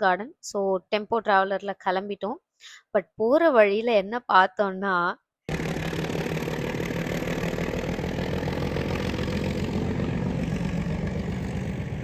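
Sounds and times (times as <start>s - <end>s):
vehicle engine running steadily: 5.5s - 12.0s.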